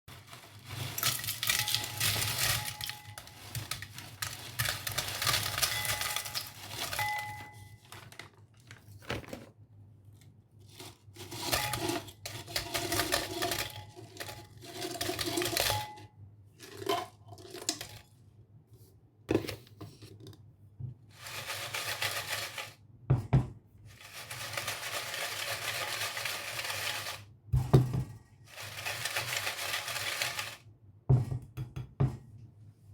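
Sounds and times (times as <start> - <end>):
potato chip bag crinkling: 0.1 - 9.5, 21.2 - 22.8, 28.6 - 30.6.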